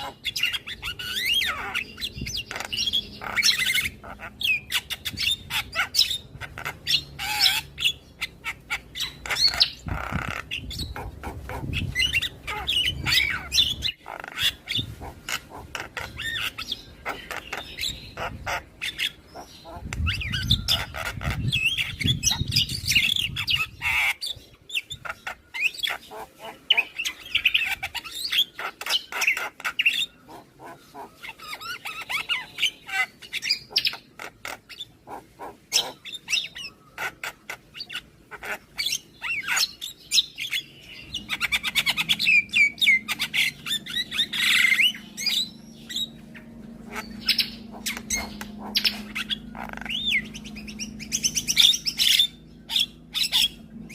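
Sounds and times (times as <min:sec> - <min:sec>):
low steady hum: 0:40.7 - 0:53.9.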